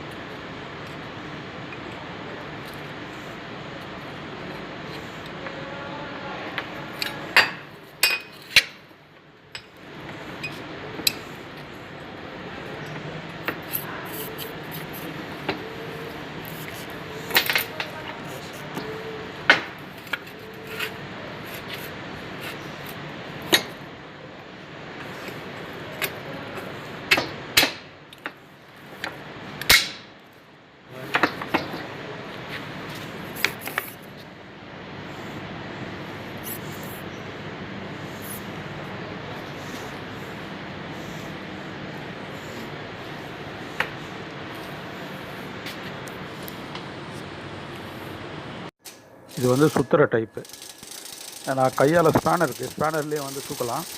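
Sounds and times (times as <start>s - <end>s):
steady background hiss: 0.0s - 53.9s
workshop background noise: 0.0s - 53.9s
metal tools clinking: 7.0s - 8.7s.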